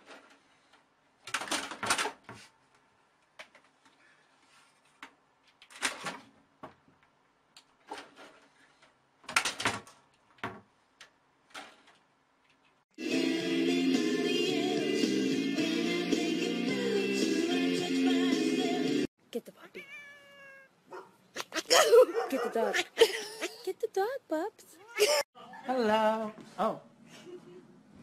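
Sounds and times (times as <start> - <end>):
music: 13.0 - 19.1.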